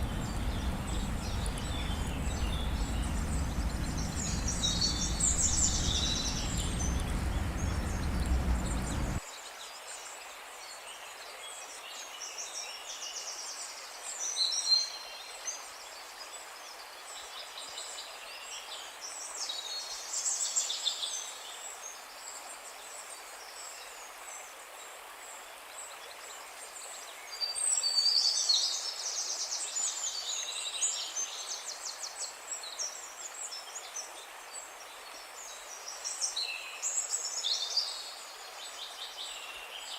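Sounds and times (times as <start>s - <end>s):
birds chirping and trilling: 0.0s - 9.2s
low steady rushing noise: 0.0s - 9.2s.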